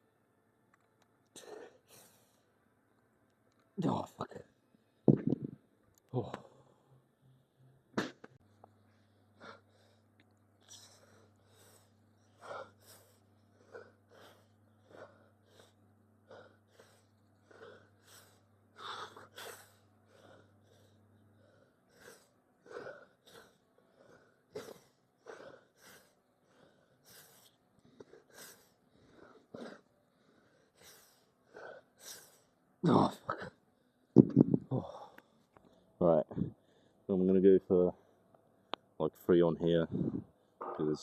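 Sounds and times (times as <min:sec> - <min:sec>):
low steady hum: 0:00.0 - 0:41.0
man breathing hard: 0:08.8 - 0:32.5.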